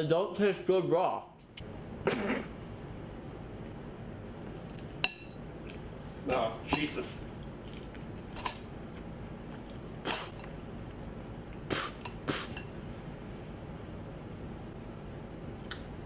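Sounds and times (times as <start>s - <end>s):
person chewing: 4.5s - 6.0s, 7.2s - 12.6s.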